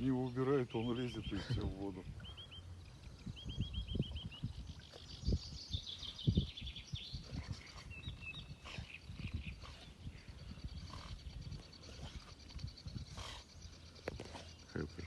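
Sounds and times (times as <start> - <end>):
small bird chirping and trilling: 0.1 - 15.0.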